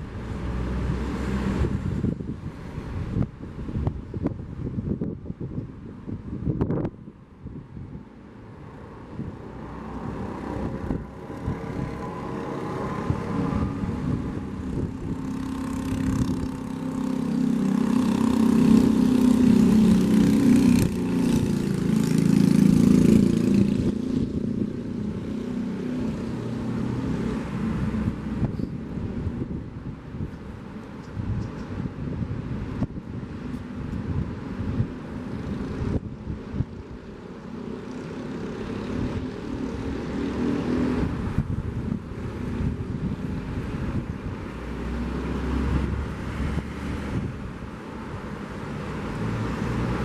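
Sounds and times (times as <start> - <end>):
vehicle engine passing: 0.0 - 3.2, 8.6 - 29.9, 32.5 - 50.0
wind: 0.0 - 50.0.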